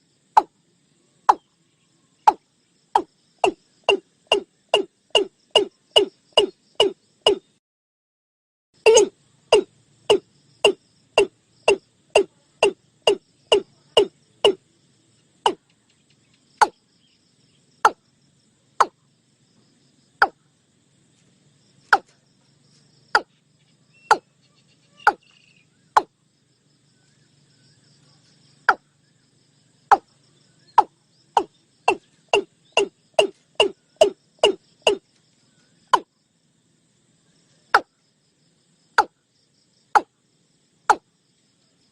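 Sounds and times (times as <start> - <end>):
watercock calling: 8.8 - 14.6, 25.0 - 25.3, 30.8 - 35.0.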